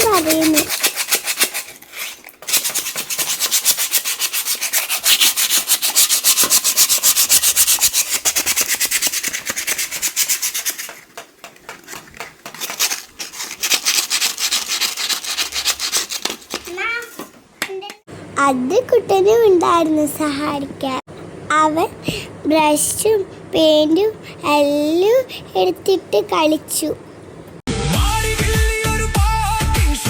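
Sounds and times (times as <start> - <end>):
sandpaper rubbing on metal part: 0.0 - 11.0, 12.5 - 16.6.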